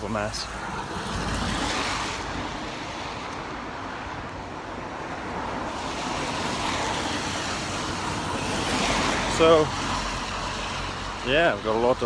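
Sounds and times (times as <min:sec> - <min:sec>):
tyre hiss on wet road: 0:05.6 - 0:11.2.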